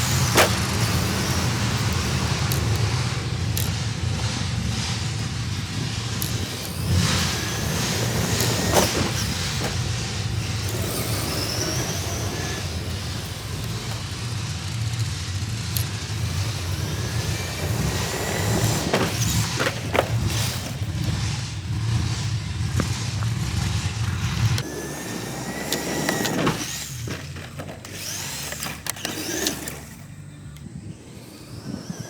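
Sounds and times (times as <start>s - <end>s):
high squeaks and sliding whistles: 0.0s - 23.2s
heavy vehicle engine rumbling: 0.0s - 32.0s.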